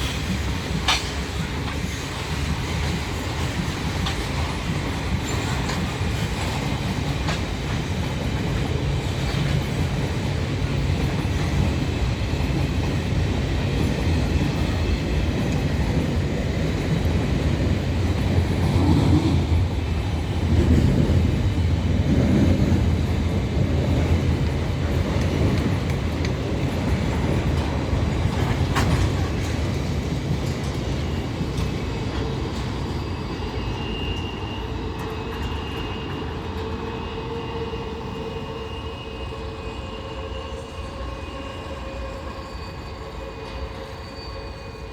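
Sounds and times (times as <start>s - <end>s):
freight train rumbling: 0.0s - 44.9s
wheels clacking over rail joints: 23.7s - 32.7s
high wheel squeal: 32.2s - 44.9s.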